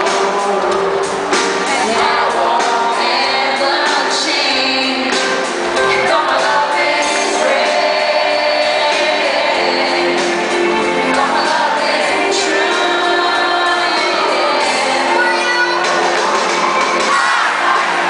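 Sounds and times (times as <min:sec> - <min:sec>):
live pop band: 0:00.0 - 0:18.0
person singing: 0:00.0 - 0:18.0.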